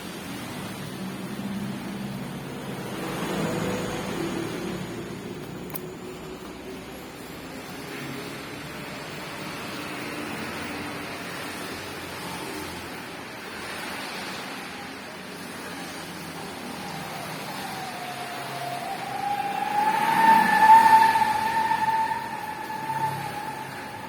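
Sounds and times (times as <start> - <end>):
rain hissing: 15.6 - 24.0
whistling tone: 16.4 - 24.0.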